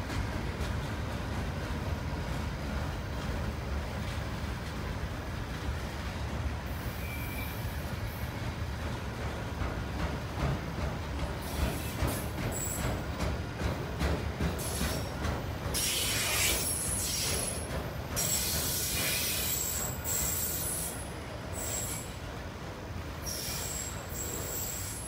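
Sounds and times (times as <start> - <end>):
freight cars rumbling on rails: 0.0 - 24.9
high hissing wheel squeal: 6.7 - 8.3, 15.8 - 17.6, 18.2 - 22.2, 23.2 - 25.0.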